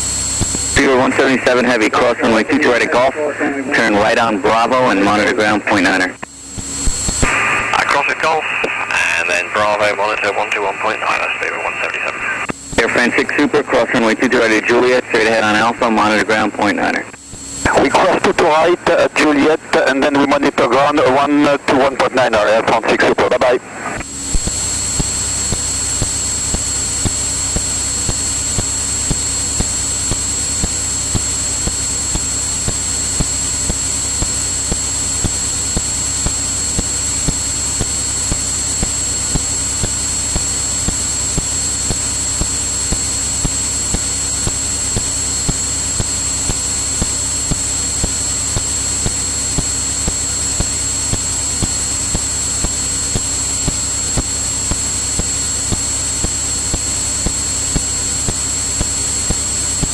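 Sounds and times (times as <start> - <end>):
airplane engine and propeller drone: 0.0 - 59.9
thin high steady whine: 0.0 - 59.9.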